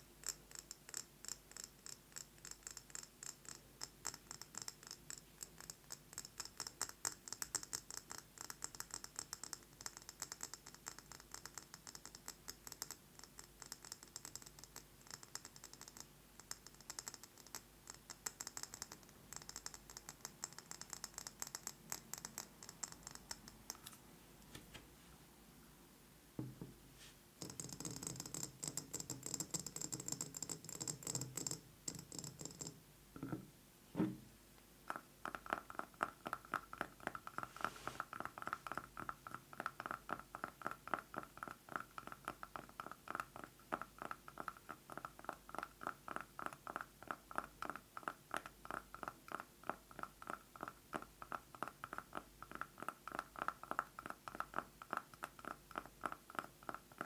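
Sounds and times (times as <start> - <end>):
fingernails tapping a jar: 0.2 - 23.9, 27.4 - 33.5.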